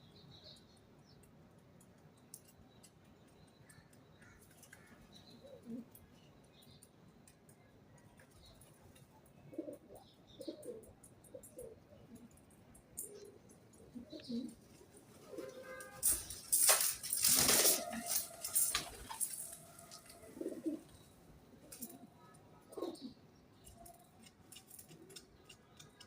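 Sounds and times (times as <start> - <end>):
small birds chirping: 0.0 - 16.4, 17.4 - 26.0
faint pigeon cooing: 4.2 - 6.2, 8.5 - 16.0, 17.4 - 26.0.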